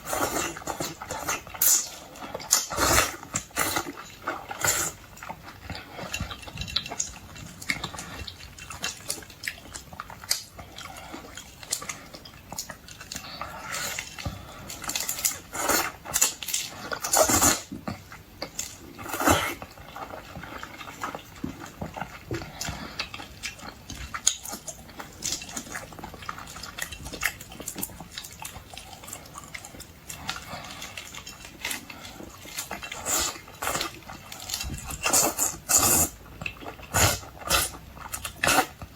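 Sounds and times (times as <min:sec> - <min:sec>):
chewing and crunching seafood: 0:00.0 - 0:38.9.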